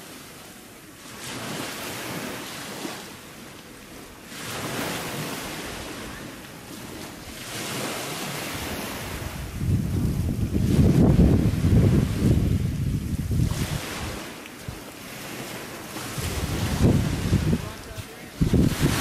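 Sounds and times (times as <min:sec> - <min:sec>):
sea waves washing on shore: 0:00.0 - 0:19.0
wind rumble on microphone: 0:06.8 - 0:19.0.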